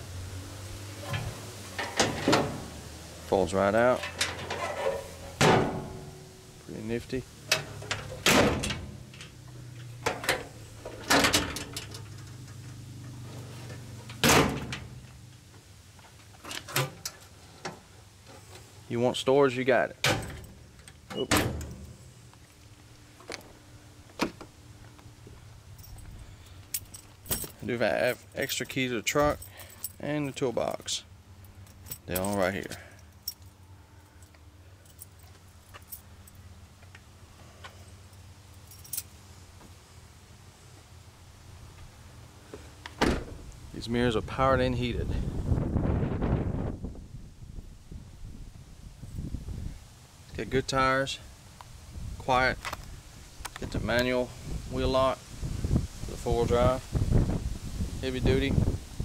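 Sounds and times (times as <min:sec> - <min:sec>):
metal compartment doors clanking: 0:01.0 - 0:02.8, 0:04.0 - 0:06.4, 0:07.5 - 0:12.5, 0:14.0 - 0:15.1, 0:20.0 - 0:21.9, 0:43.0 - 0:43.4
keys jingling: 0:25.7 - 0:30.4, 0:38.6 - 0:39.1.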